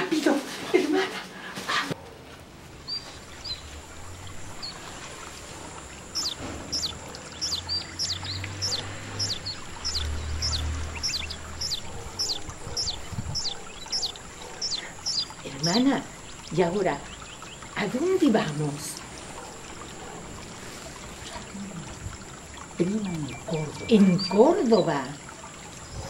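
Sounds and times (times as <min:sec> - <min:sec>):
bird chirping: 0:02.8 - 0:17.9, 0:22.8 - 0:25.0.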